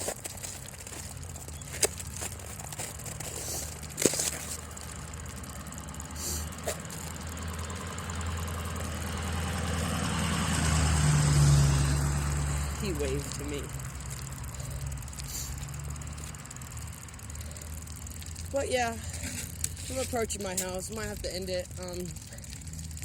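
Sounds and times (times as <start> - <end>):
vehicle engine humming: 0.0 - 23.0
sharp clicks: 13.2 - 23.0.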